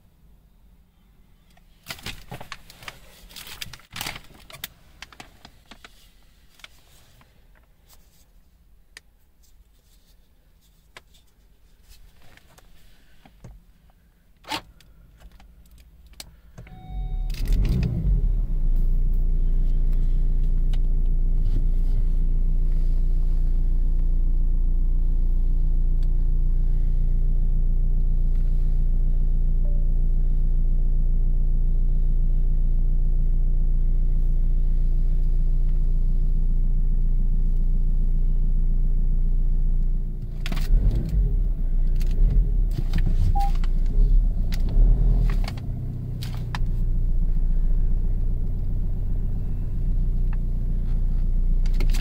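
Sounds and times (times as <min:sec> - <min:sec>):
car engine starting and idling: 0:12.8 - 0:52.0
brief tone: 0:16.6 - 0:17.4, 0:29.6 - 0:30.4, 0:43.3 - 0:43.6.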